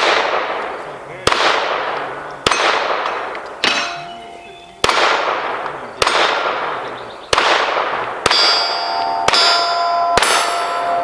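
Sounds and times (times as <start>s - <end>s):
pistol shots: 0.0s - 4.2s, 4.8s - 11.0s
steel target ringing: 2.4s - 5.1s, 8.2s - 11.0s.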